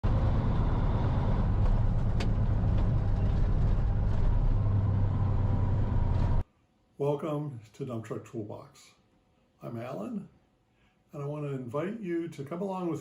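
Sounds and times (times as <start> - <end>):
truck engine humming: 0.0 - 6.4.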